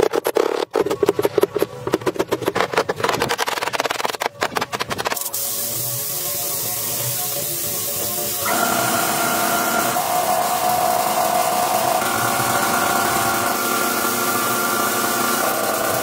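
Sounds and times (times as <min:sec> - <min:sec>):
power tool whining: 0:08.2 - 0:16.0.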